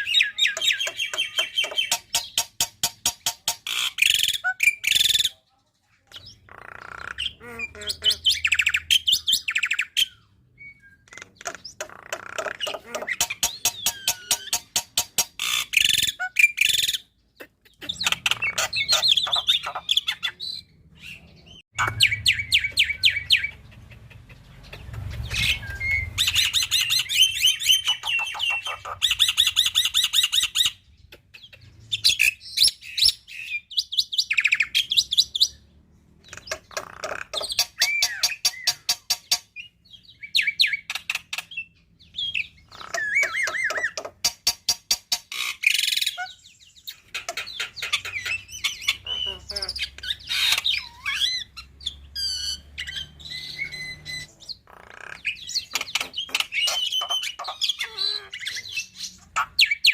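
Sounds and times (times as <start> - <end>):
bird singing clicks and whistles: 0.0 - 5.2, 10.8 - 17.0, 55.2 - 57.6.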